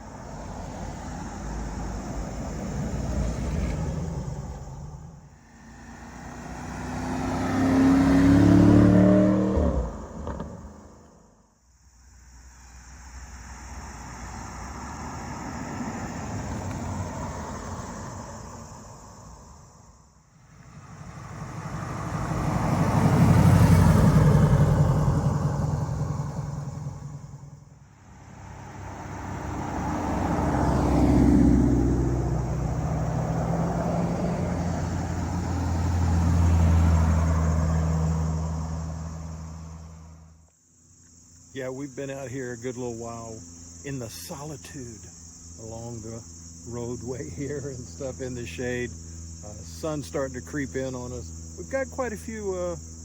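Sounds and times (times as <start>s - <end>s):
car driving past: 0.1s - 11.4s, 13.1s - 40.5s.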